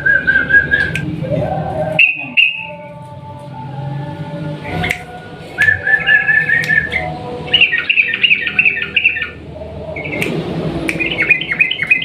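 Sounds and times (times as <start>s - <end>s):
bird singing chattering notes: 2.0s - 2.8s, 6.0s - 9.4s, 11.0s - 12.0s.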